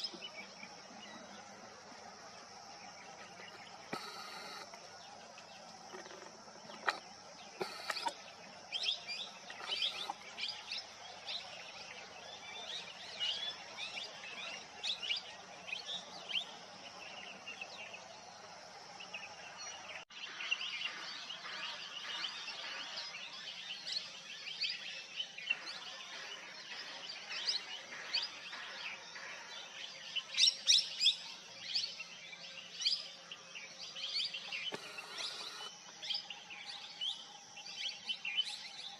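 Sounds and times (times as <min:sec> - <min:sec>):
birds chirping: 0:00.0 - 0:38.9
steady high hiss: 0:00.9 - 0:05.7.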